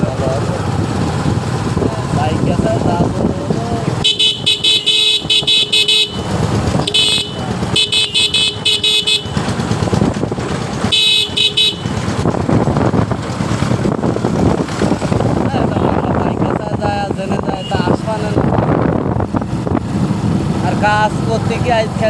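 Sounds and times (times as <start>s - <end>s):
traffic and engine noise: 0.0s - 22.0s
vehicle horn short beeps: 4.0s - 9.4s, 10.9s - 11.9s.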